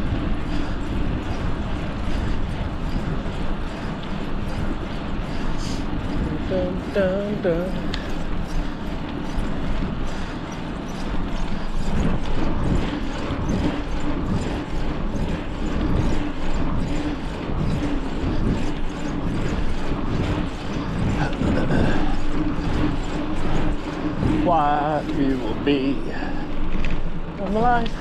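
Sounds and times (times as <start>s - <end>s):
steady low hum: 0.0s - 28.0s
wind buffeting microphone: 0.0s - 28.0s.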